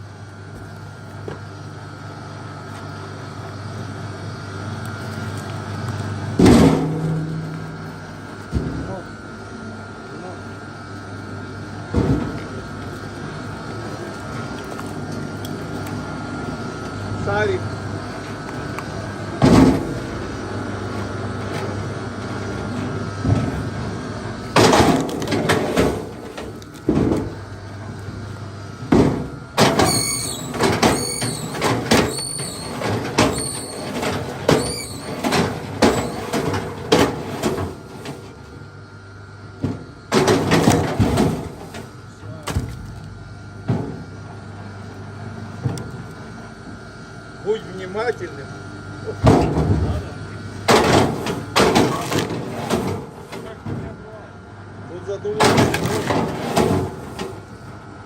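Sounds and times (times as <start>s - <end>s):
short high squeaks: 29.9s - 33.9s, 34.6s - 35.2s.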